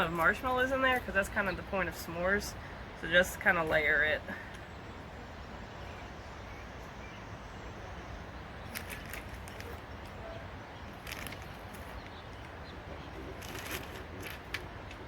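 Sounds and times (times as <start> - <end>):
short crackles: 8.6 - 10.2, 10.9 - 12.6, 13.2 - 15.0.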